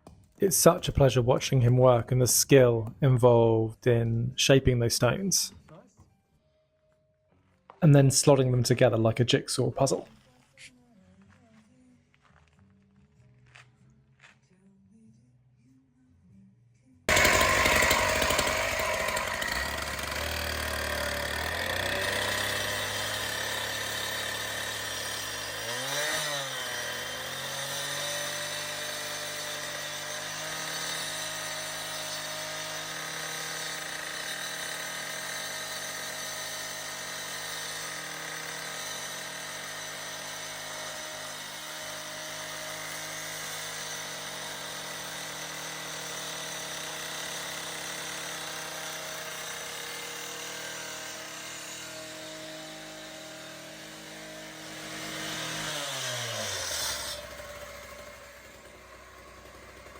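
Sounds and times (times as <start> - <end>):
power tool running: 17.1 - 59.9.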